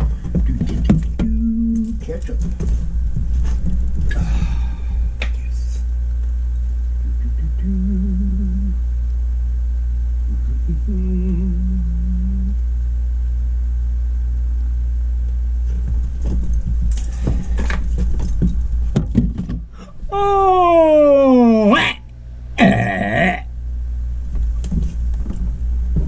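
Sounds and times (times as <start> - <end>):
loud low hum: 0.0 - 26.0
person humming: 1.2 - 2.0, 7.0 - 8.9, 10.2 - 12.6, 19.8 - 23.5.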